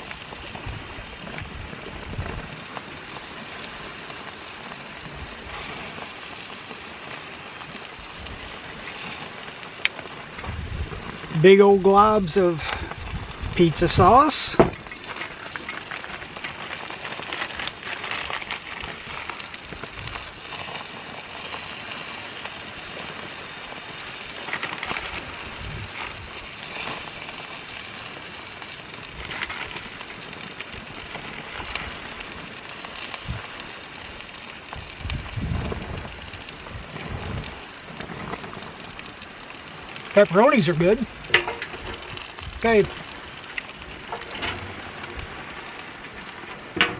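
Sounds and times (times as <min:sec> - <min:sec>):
patties sizzling on a grill: 0:00.0 - 0:46.9
low thumps: 0:13.9 - 0:15.0.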